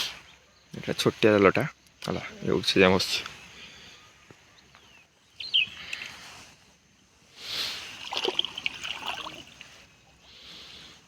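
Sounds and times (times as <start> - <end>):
water splashing and trickling: 7.5 - 10.1.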